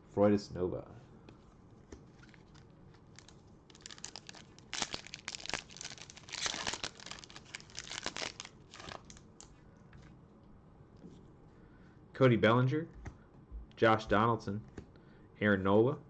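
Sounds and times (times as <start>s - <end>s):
foil wrapper tearing and crinkling: 2.2s - 9.2s.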